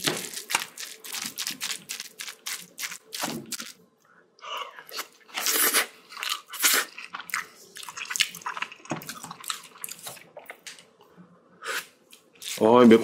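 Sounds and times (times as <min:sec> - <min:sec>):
person chewing close to microphone: 0:00.0 - 0:03.8, 0:04.7 - 0:10.8.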